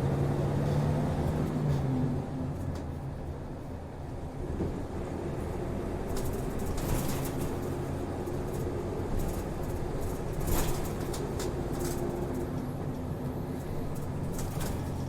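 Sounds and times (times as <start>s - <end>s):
bus engine humming: 0.0s - 15.0s
clicks and rattles in cabin: 6.0s - 13.0s, 13.6s - 15.0s.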